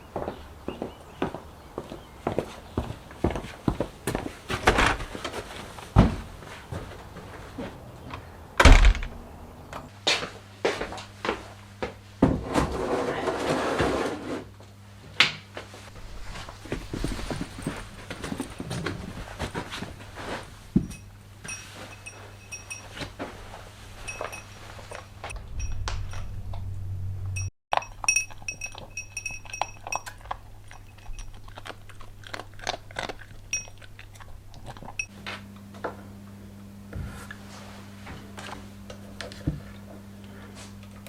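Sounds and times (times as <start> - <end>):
metal tools clinking: 20.8 - 23.2, 23.9 - 26.4, 27.4 - 31.4
low hum: 24.0 - 27.5
second low hum: 24.0 - 27.5.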